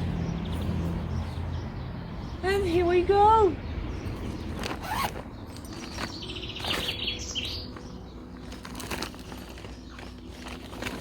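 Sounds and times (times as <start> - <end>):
packaging rustling: 4.5 - 7.0, 7.7 - 11.0.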